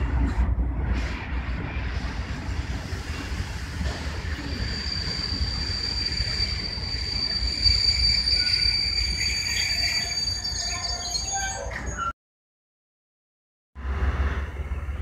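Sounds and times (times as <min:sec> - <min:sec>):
train rumbling on rails: 0:00.0 - 0:12.1, 0:13.8 - 0:15.0
high-pitched wheel squeal: 0:04.4 - 0:12.1.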